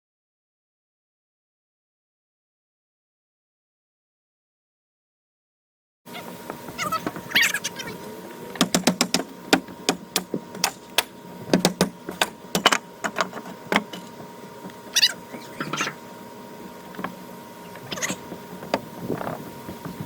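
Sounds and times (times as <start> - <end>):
high squeaks: 6.1 - 8.1, 14.9 - 16.0, 17.6 - 18.3
deck boards knocking and cracking: 8.6 - 14.0.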